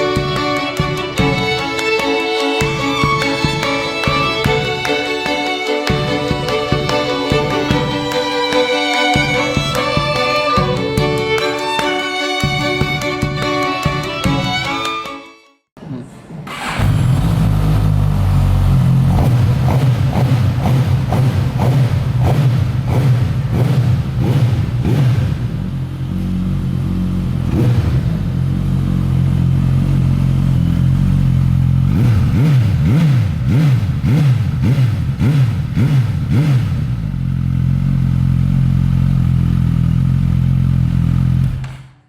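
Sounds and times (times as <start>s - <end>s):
motorcycle engine revving: 16.5s - 41.9s.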